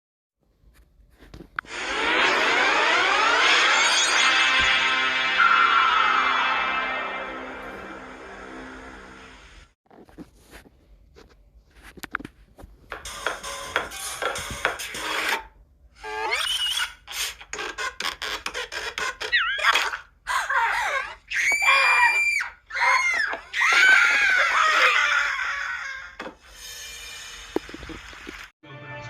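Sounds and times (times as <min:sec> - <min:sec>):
parrot squawks and screeches: 0:16.0 - 0:18.0.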